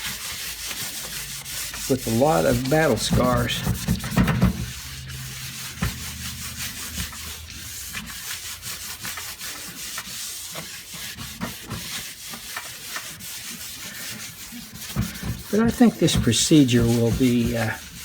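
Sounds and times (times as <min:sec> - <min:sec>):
scratchy scrubbing on metal: 0:00.0 - 0:18.0
low hum: 0:02.0 - 0:08.6.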